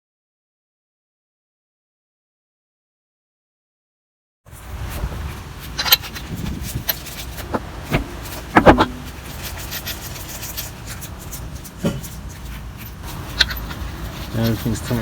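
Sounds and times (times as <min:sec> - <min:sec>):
tools and brake parts clattering: 0:05.8 - 0:15.0.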